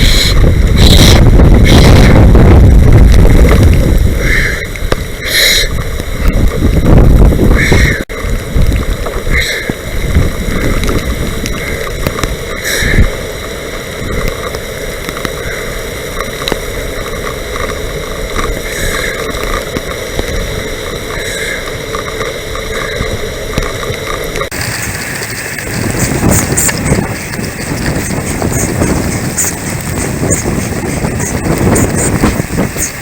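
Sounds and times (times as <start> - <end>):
wind buffeting microphone: 0.0 - 13.2, 24.5 - 33.0
wet rushing noise of riding: 0.0 - 33.0.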